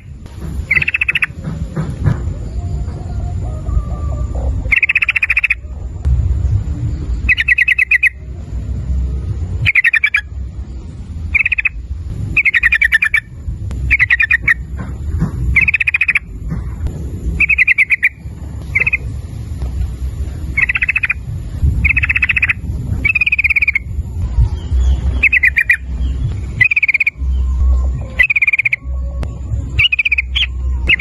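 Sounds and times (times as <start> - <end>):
faint high whine: 0.0 - 31.0
low rumble: 0.0 - 31.0
bird calling in bubbling phrases: 0.7 - 1.4, 4.6 - 5.9, 7.3 - 8.2, 9.6 - 10.3, 11.3 - 11.8, 12.4 - 13.3, 13.9 - 14.7, 15.6 - 16.3, 17.4 - 19.1, 20.5 - 21.2, 21.8 - 25.9, 26.6 - 29.1, 29.8 - 31.0.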